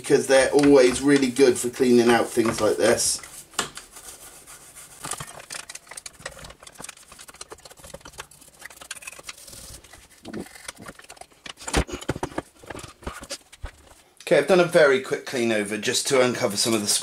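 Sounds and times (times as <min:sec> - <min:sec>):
toothbrush scrubbing: 0:03.9 - 0:11.2.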